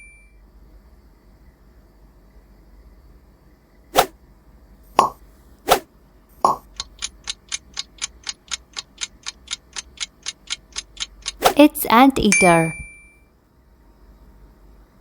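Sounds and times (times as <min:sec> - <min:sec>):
popping sound effects: 0:05.0 - 0:05.2, 0:06.5 - 0:11.6
clock-like ticking: 0:06.5 - 0:12.8.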